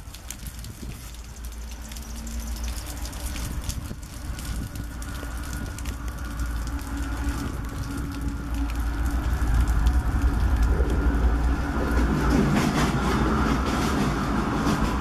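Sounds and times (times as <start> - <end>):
diesel locomotive rumble: 0.0 - 15.0
wheels clicking over rails: 6.9 - 15.0.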